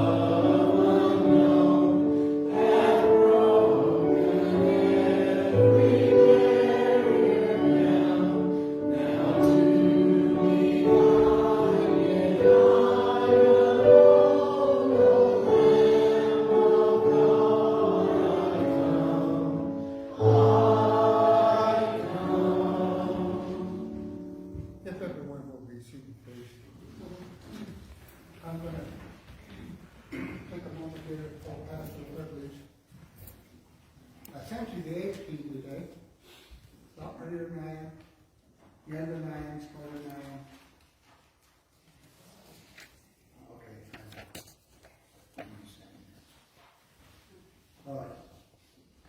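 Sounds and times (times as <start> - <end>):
choir singing a hymn: 0.0 - 24.8.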